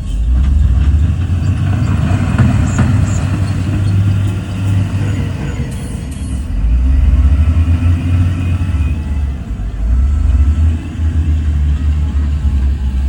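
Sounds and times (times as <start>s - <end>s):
heavy diesel engine working: 0.0s - 13.0s.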